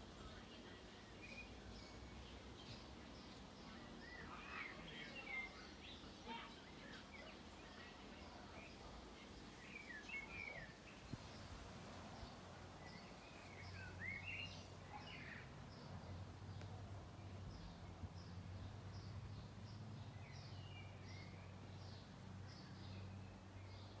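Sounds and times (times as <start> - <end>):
outdoor background noise: 0.0 - 24.0
faint bird chirps: 0.2 - 11.5.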